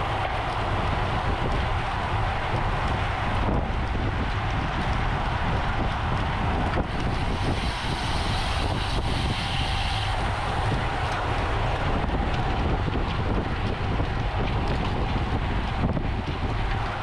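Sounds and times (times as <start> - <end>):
wind rushing over microphone: 0.0 - 17.0
tyre and road hiss: 6.0 - 12.8.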